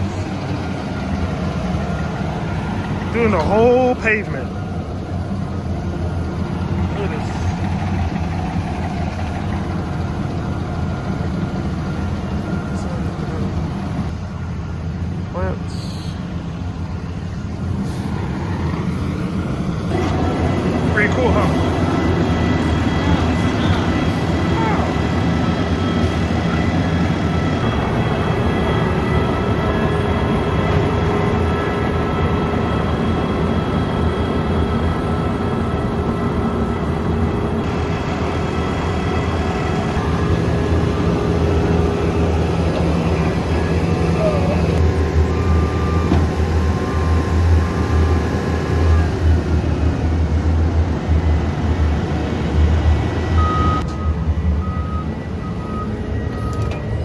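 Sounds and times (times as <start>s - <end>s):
engine drone: 0.0s - 57.0s
reversing beeps: 45.3s - 49.2s, 53.4s - 57.0s.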